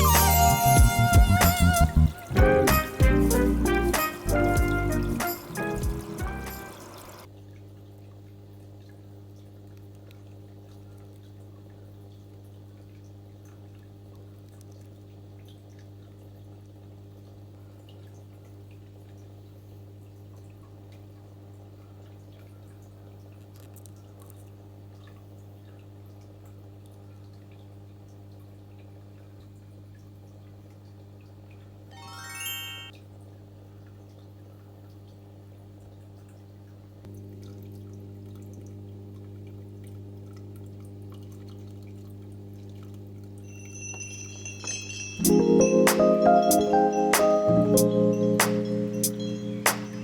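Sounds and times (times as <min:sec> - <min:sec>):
faint water drips: 0:05.4 - 0:31.8, 0:33.2 - 0:45.0
low electrical hum: 0:33.0 - 0:45.8.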